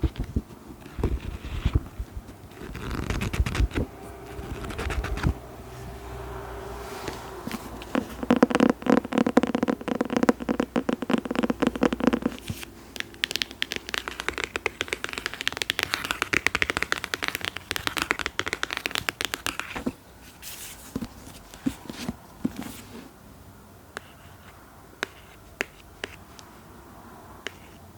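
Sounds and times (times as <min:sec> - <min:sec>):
fast bright scratching: 0:00.0 - 0:05.4, 0:07.5 - 0:19.9.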